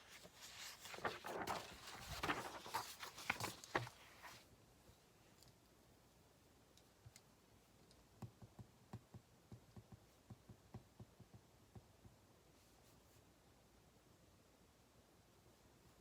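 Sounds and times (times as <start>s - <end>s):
light clicks and taps at a desk: 6.7s - 12.3s.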